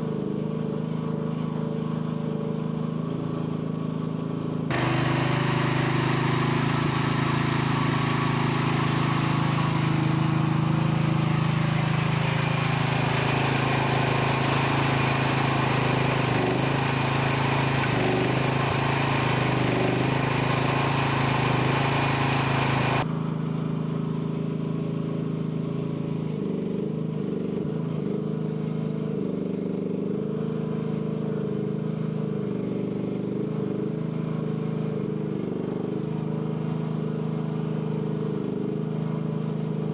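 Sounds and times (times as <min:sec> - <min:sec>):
small excavator engine running: 0:04.7 - 0:23.1.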